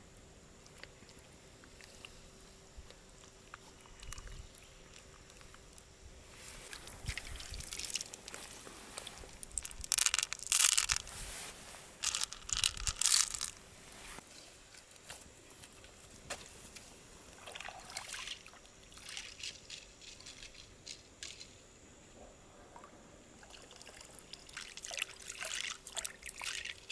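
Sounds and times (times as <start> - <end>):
clam shells crunching and squelching: 6.8 - 11.3, 12.0 - 13.6.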